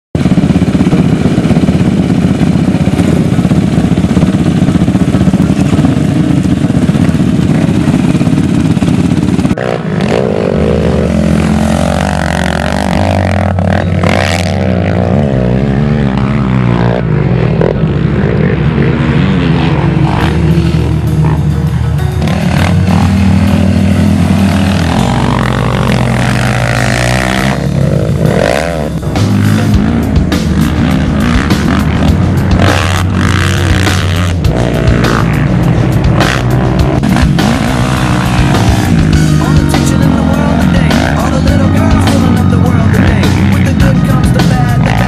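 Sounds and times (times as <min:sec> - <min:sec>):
quad engine revving high: 0:00.2 - 0:45.0
music with held bass notes: 0:09.5 - 0:45.0.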